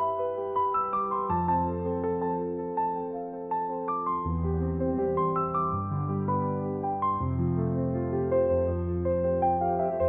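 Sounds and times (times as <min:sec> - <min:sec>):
soft slow piano notes: 0:00.0 - 0:10.0.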